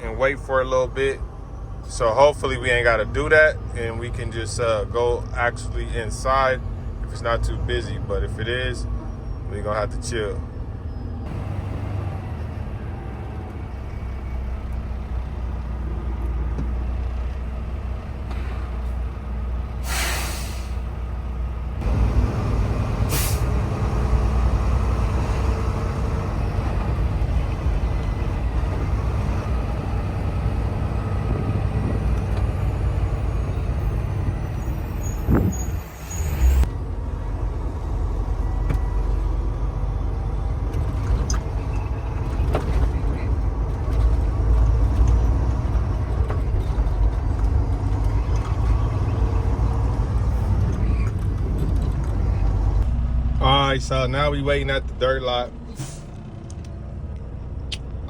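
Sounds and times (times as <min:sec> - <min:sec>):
diesel truck engine running: 0:00.0 - 0:58.0
air brakes hissing: 0:19.8 - 0:20.9, 0:23.0 - 0:23.6, 0:55.7 - 0:56.2.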